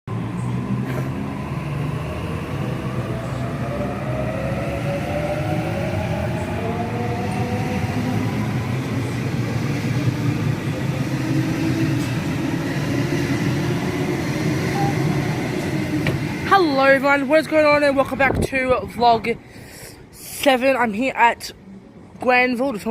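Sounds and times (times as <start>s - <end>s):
electric train running: 0.1s - 18.0s.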